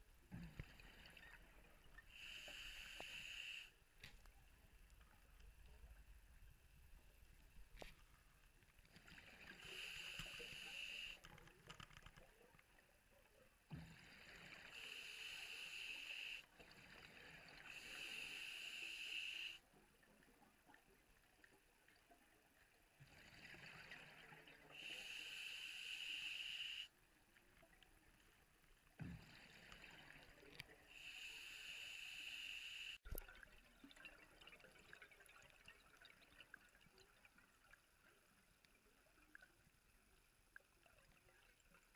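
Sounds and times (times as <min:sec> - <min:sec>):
diver breathing through regulator: 0:02.2 - 0:03.8, 0:17.7 - 0:19.6, 0:24.8 - 0:26.9, 0:31.0 - 0:33.0.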